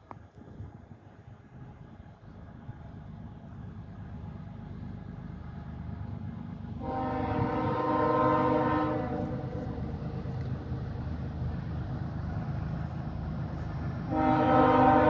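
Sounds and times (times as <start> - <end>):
low rumble of train: 0.0 - 15.0
freight train horn: 6.8 - 10.4, 14.0 - 15.0.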